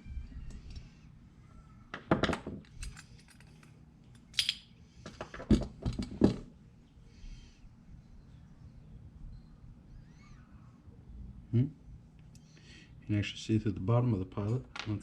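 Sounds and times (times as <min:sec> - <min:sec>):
metal parts and tools clinking: 0:02.2 - 0:06.1.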